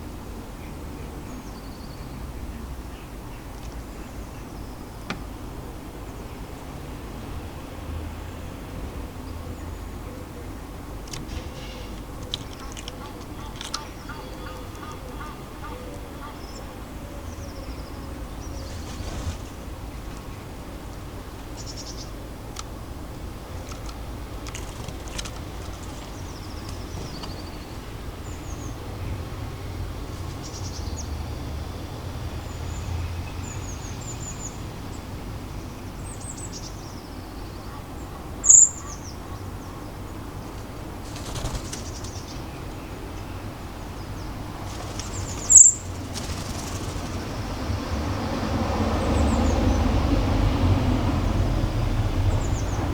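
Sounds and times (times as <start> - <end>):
small birds chirping: 8.2 - 50.1
bird wingbeats: 10.7 - 15.5, 17.6 - 28.5, 29.9 - 31.2, 40.7 - 42.8, 44.2 - 49.4
sharp loud high bird calls: 44.8 - 47.3.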